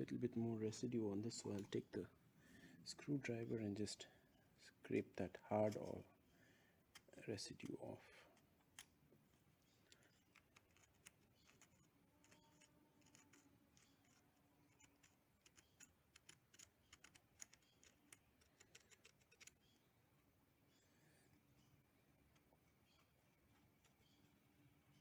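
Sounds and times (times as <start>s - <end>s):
screwdriver scraping metal terminal: 9.9s - 19.8s.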